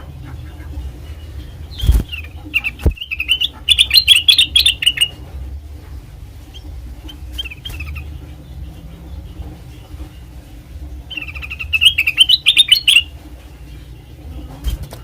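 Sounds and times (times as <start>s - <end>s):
bird chirping and chattering: 0.1s - 5.2s, 6.5s - 14.9s.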